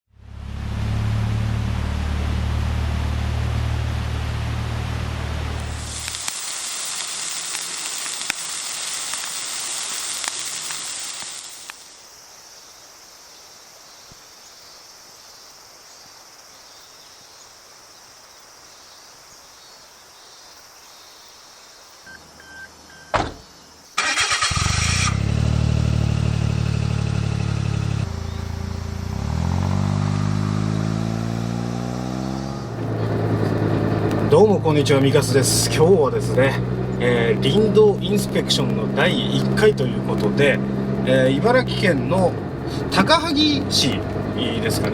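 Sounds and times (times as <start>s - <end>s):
car engine cranking and idling: 0.1s - 6.2s, 22.2s - 44.9s
steady hiss: 5.4s - 22.4s.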